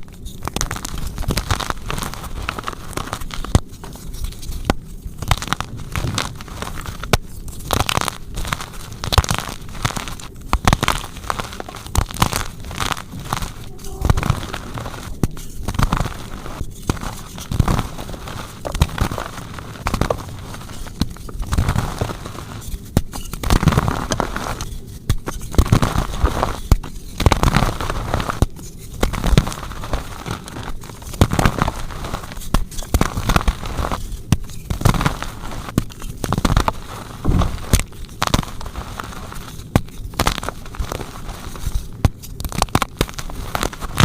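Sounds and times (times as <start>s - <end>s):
chalk blocks crunching: 33.0s - 44.0s.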